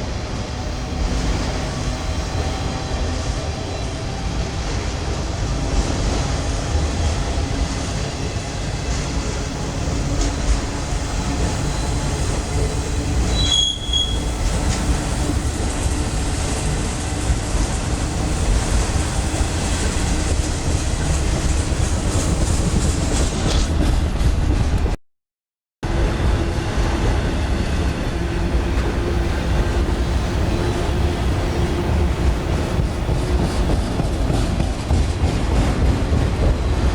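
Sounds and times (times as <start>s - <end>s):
train wheels rumbling on rail: 0.0s - 25.0s, 25.8s - 36.9s
high wheel squeal: 10.9s - 15.4s.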